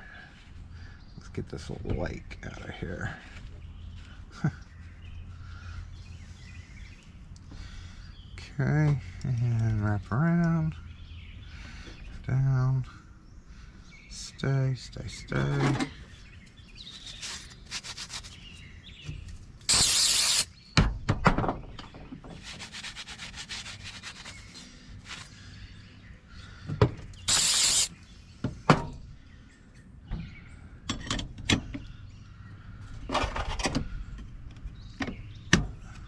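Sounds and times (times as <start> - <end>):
short loud hisses: 19.7 - 20.5, 27.3 - 27.9.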